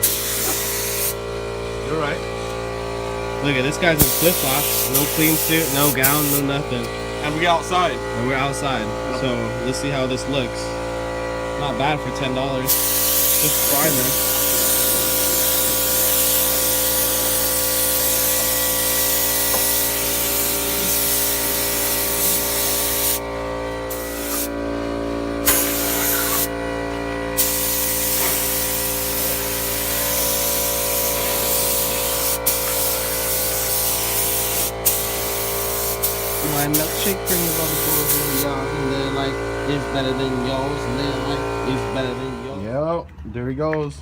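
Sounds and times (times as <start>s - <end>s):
spray hissing: 0.0s - 1.2s, 3.8s - 6.5s, 12.6s - 23.2s, 23.9s - 24.6s, 25.4s - 26.6s, 27.4s - 39.2s
steady hum: 0.0s - 43.0s.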